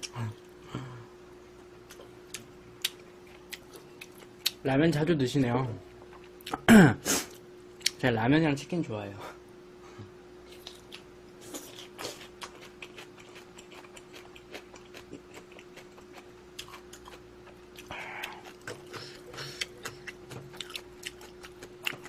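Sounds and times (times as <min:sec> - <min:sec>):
faint steady hum: 0:00.0 - 0:22.0
chewing with wet mouth clicks: 0:01.9 - 0:04.6, 0:10.5 - 0:22.0.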